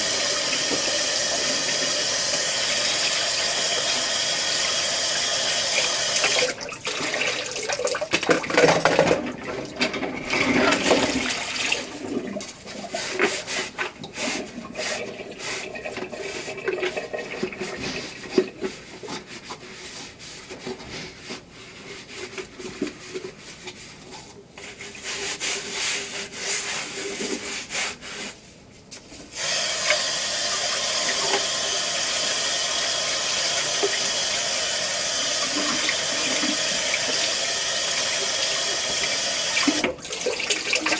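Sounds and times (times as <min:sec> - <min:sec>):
running water: 0:00.0 - 0:19.0, 0:29.4 - 0:40.9
dishes rubbing and clattering: 0:06.3 - 0:28.4, 0:33.0 - 0:40.9.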